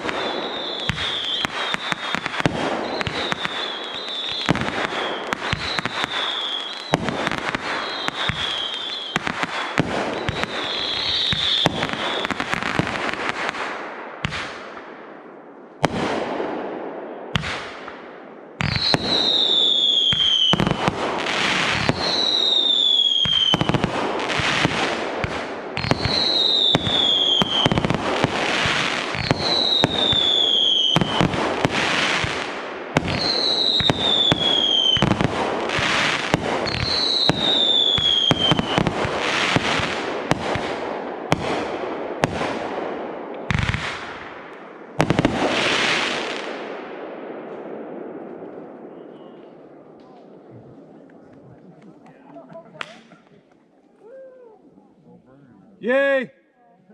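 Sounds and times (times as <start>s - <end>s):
falling firework whistle: 0.0s - 12.5s, 21.8s - 23.8s, 29.2s - 31.3s, 33.1s - 35.1s, 36.0s - 39.6s
fireworks bangs and crackling: 0.0s - 53.5s.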